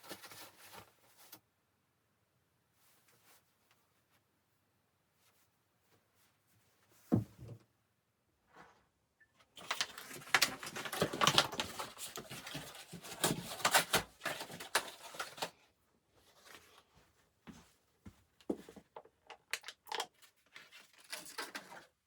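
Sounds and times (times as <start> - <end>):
objects rustling and clicking: 9.6 - 15.6, 18.5 - 22.0.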